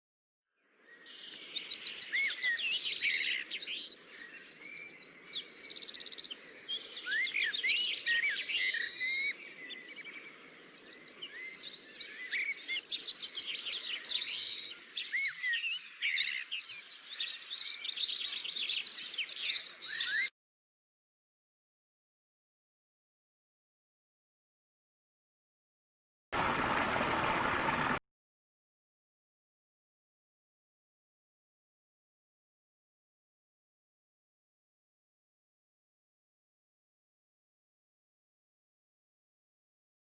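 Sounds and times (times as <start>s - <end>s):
songbirds singing: 0.6s - 20.3s.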